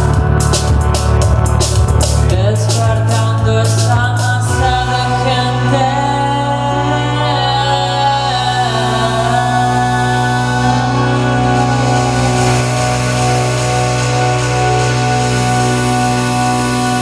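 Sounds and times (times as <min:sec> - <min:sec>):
drums with cymbal strokes: 0:00.0 - 0:04.7
bass guitar: 0:00.0 - 0:17.0
guitar chords: 0:00.0 - 0:17.0.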